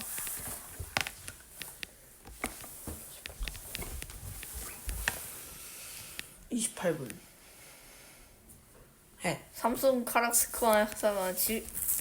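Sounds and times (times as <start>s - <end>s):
faint clicks and light taps: 0.1s - 5.3s.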